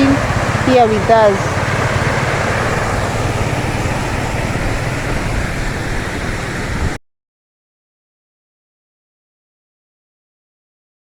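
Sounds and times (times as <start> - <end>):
waterfall roaring: 0.0 - 7.0.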